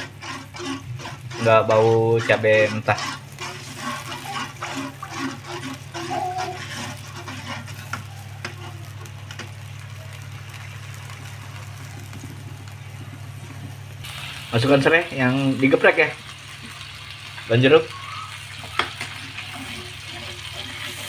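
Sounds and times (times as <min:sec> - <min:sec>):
metal spoon scraping a wok: 0:00.0 - 0:08.8, 0:18.4 - 0:21.0
paste sizzling in oil: 0:00.0 - 0:21.0
low hum: 0:06.4 - 0:14.3.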